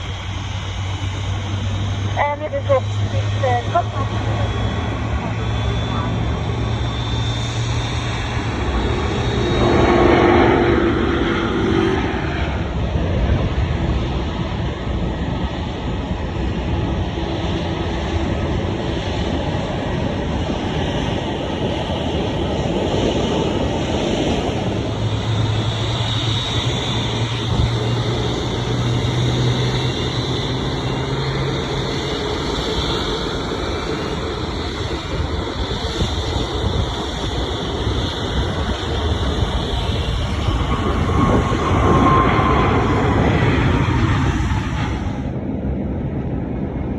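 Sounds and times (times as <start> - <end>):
faint high whine: 0.0 - 12.8
low hum: 0.0 - 14.9, 23.3 - 37.8
jet airliner passing: 0.0 - 46.9.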